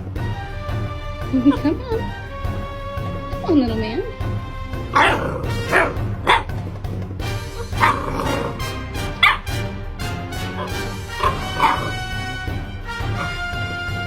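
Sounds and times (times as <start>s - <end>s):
background music: 0.0s - 14.0s
dog barking: 5.0s - 6.6s, 7.7s - 8.6s, 9.2s - 9.5s, 10.5s - 12.2s, 13.0s - 13.5s.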